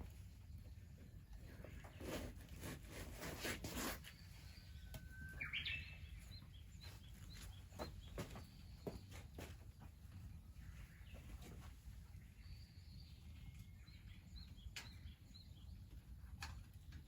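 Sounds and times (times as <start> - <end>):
rustling noise: 1.7 - 4.3
bird chirping: 3.8 - 16.0
bird whistling: 5.0 - 6.0.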